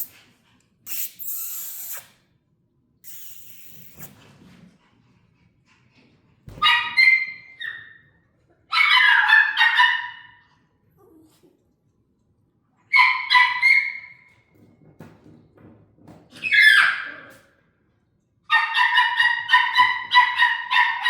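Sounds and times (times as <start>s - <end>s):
puppy yips and squeals: 0.9s - 2.2s, 3.1s - 4.2s, 6.5s - 8.1s, 8.7s - 10.4s, 12.9s - 14.3s, 16.4s - 17.5s.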